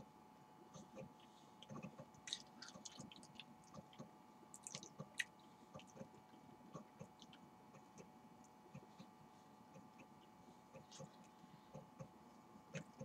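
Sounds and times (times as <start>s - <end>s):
faint steady hum: 0.0s - 13.0s
wet chewing clicks and smacks: 1.6s - 8.9s.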